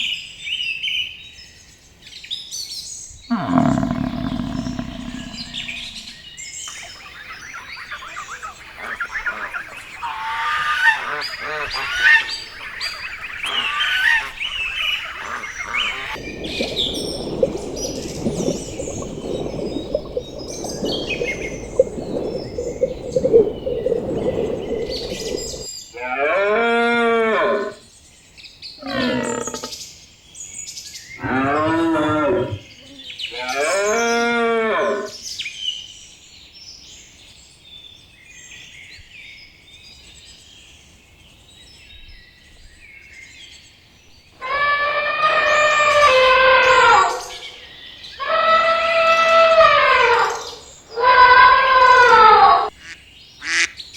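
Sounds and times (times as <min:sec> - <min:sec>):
cattle mooing: 0:03.3 - 0:06.2
small birds chirping: 0:03.3 - 0:25.7.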